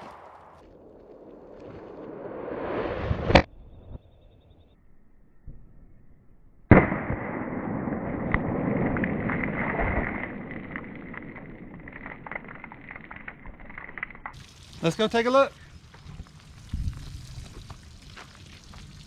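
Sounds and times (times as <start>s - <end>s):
crackling rush: 0.0s - 3.5s, 6.8s - 19.0s
pistol shot: 6.7s - 9.5s.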